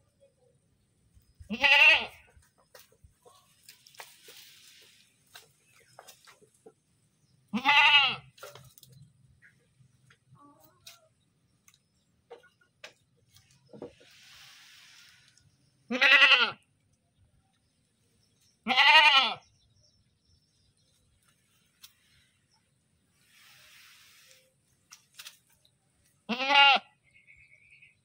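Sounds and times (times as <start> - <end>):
goat bleating: 1.5 - 2.2, 7.5 - 8.3, 15.9 - 16.6, 18.6 - 19.4, 26.3 - 26.9
soft hiss: 13.9 - 15.7, 23.1 - 25.4.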